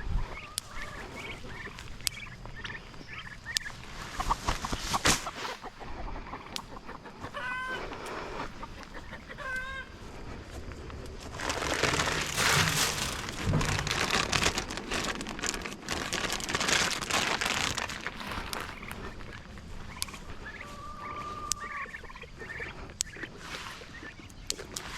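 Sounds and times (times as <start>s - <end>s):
poultry warbling calls: 0.2s - 24.9s.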